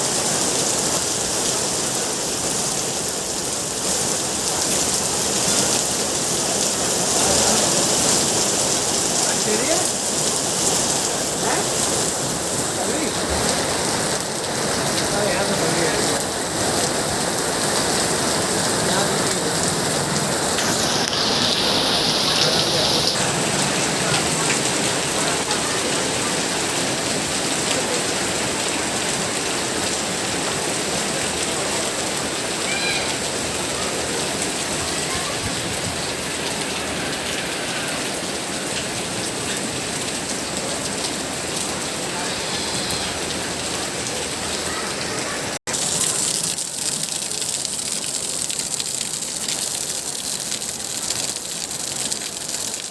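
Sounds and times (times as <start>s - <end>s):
rain pattering: 0.0s - 52.9s.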